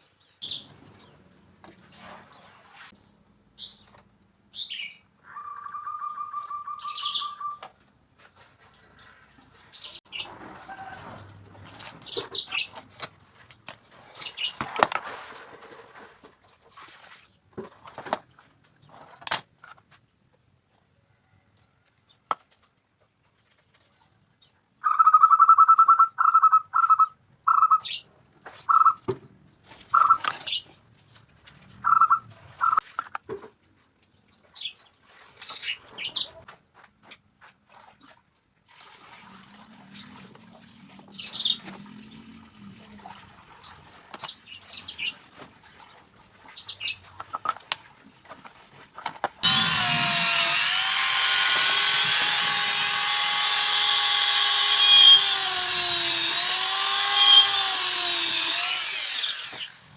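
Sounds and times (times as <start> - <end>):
high bird chirps: 4.6 - 7.6.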